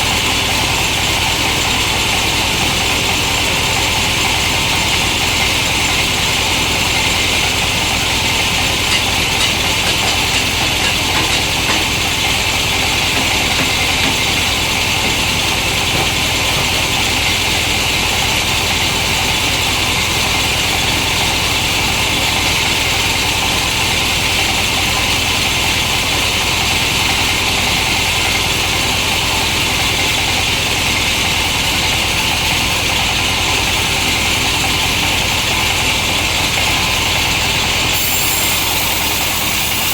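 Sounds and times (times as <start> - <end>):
chainsaw cutting wood: 37.9 - 39.9.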